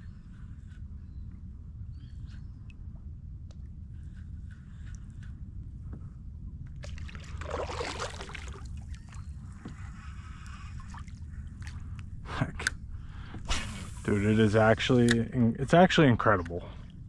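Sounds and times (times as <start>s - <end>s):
low rumble: 0.0s - 17.0s
water splashing and trickling: 6.8s - 9.4s, 10.6s - 11.9s.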